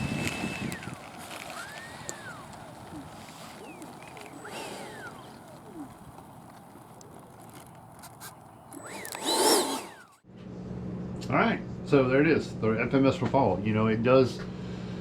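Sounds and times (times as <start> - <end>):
birds chirping: 0.0 - 10.2.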